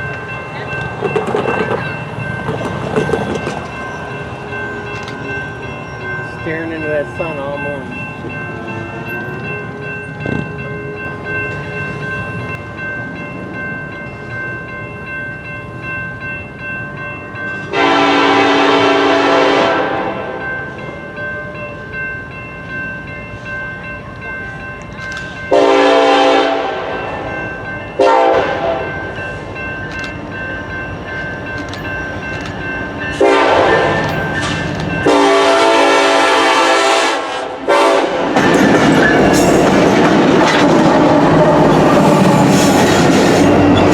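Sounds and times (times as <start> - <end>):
train rumbling: 0.0 - 43.9
locomotive horn blasts: 17.7 - 20.4, 25.5 - 27.0, 28.0 - 28.9, 33.2 - 34.1, 35.0 - 38.3.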